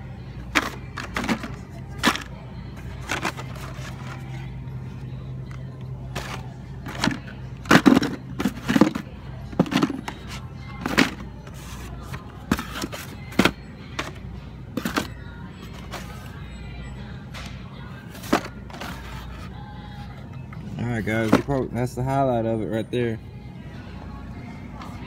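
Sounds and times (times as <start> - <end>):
background music: 0.0 - 25.0
plastic packaged toy cars clacking: 0.4 - 2.3.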